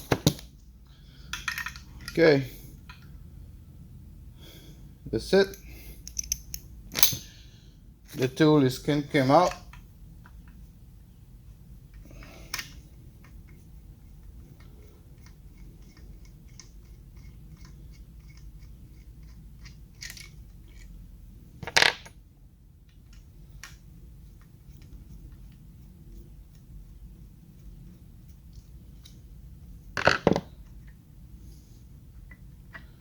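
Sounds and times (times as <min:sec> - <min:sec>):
metal tools clinking: 0:05.4 - 0:07.2.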